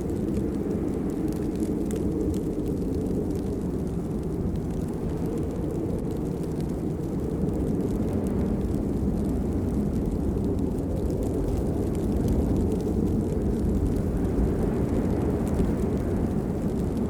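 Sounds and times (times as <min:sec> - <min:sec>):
rain patter ticks: 0:00.0 - 0:17.0
steady rain rumble: 0:00.0 - 0:17.0.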